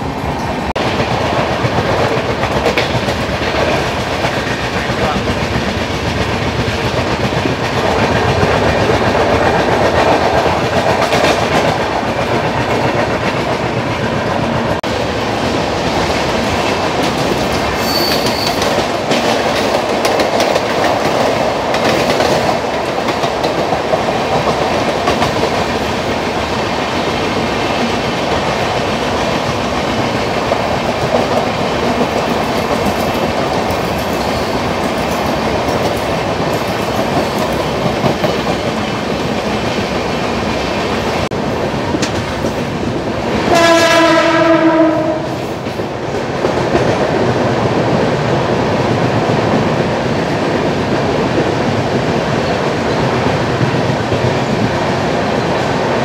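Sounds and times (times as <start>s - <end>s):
train wheels clattering on rails: 0.0s - 56.0s
short high squeak: 17.8s - 18.6s.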